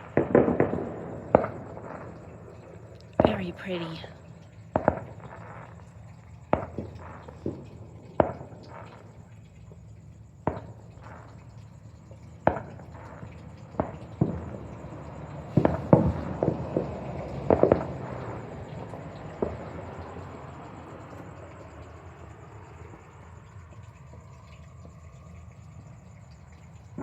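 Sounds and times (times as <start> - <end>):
fireworks bangs echoing: 15.6 - 18.2.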